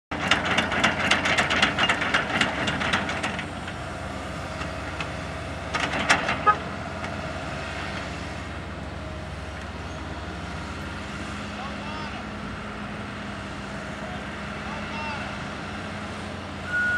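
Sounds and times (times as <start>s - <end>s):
rapid clattering and knocking: 0.1s - 3.8s, 4.6s - 6.5s
bulldozer diesel engine running: 0.1s - 16.9s.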